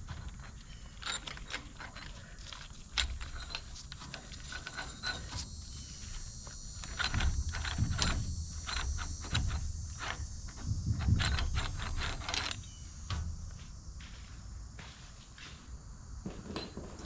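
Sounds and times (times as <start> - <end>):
ratchet wrench clicking: 2.5 - 12.7.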